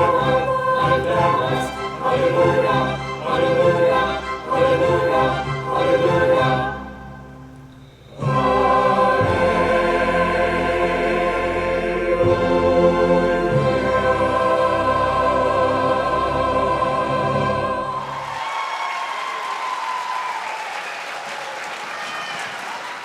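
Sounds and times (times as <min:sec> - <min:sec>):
choir singing sustained chords: 0:00.0 - 0:18.4.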